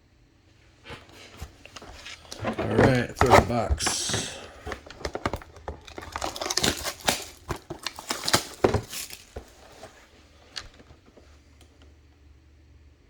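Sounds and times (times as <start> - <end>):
plastic wrap crinkling: 1.1 - 11.2.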